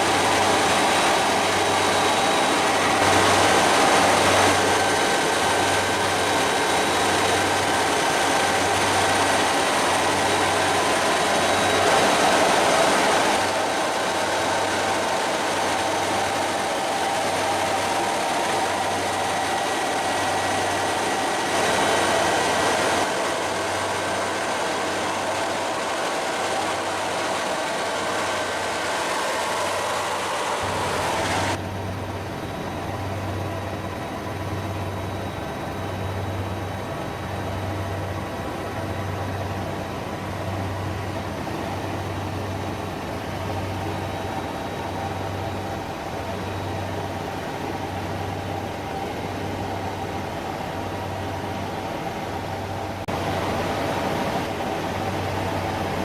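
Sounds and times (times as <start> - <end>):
faint high whine: 0.0 - 56.0
helicopter engine and rotor drone: 0.0 - 56.0.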